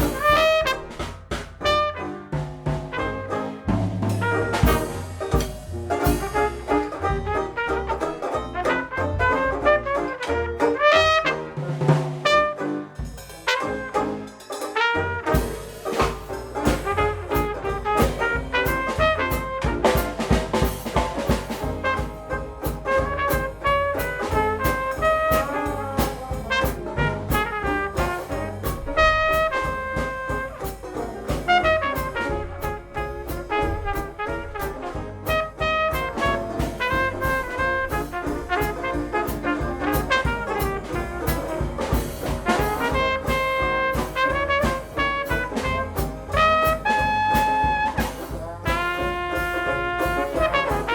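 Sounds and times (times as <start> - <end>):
piano: 0.0 - 47.9
banjo: 0.0 - 50.9
drum kit steady beat: 0.0 - 50.9
trumpet melody: 0.0 - 50.9.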